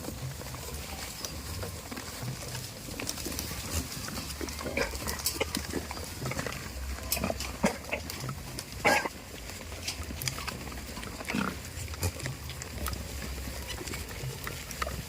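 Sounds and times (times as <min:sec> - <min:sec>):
goats bleating: 0:03.1 - 0:14.8.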